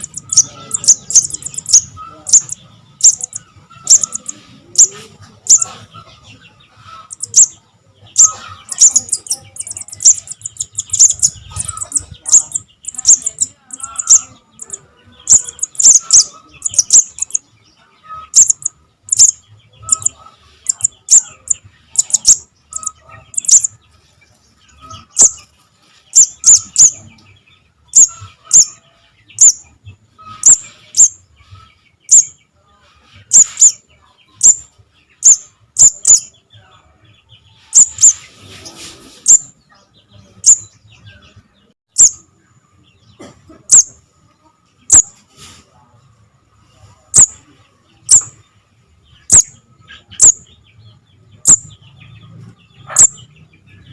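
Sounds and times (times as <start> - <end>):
fledgling birds chirping: 0.0 - 53.9.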